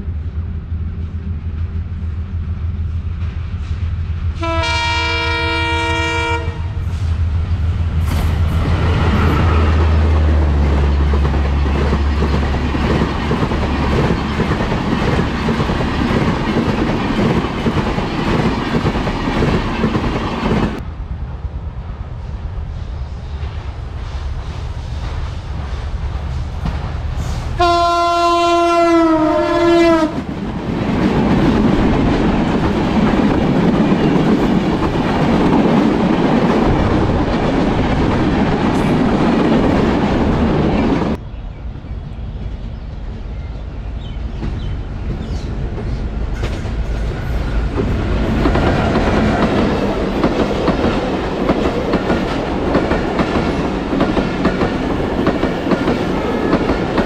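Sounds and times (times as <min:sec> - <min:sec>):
train rushing past: 0:00.0 - 0:57.0
locomotive air horn: 0:04.4 - 0:06.8, 0:27.6 - 0:30.2
wheels clickety-clack on rail joints: 0:06.8 - 0:20.8, 0:23.3 - 0:28.8, 0:29.8 - 0:41.2, 0:42.4 - 0:57.0.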